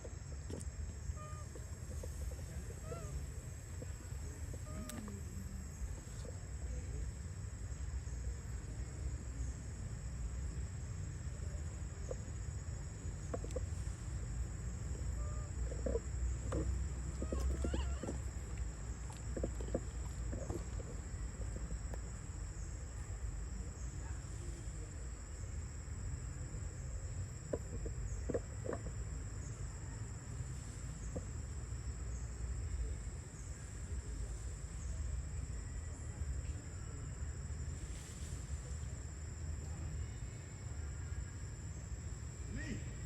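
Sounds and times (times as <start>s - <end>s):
constant low rumble: 0.0s - 43.0s
faint calls: 1.0s - 6.3s, 14.8s - 21.3s.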